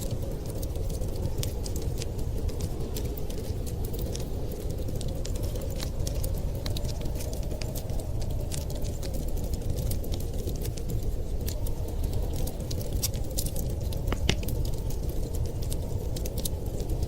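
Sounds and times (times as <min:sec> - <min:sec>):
storm wind rumbling: 0:00.0 - 0:17.0
wood fire crackling: 0:00.0 - 0:17.0.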